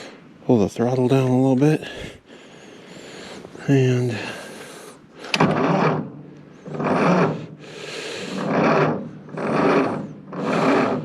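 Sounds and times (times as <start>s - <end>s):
tractor engine cranking slowly: 2.9s - 11.0s.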